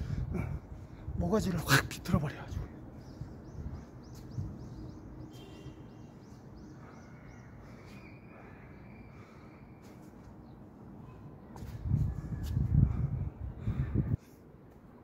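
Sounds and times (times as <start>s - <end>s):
bird chirping: 2.9s - 11.2s.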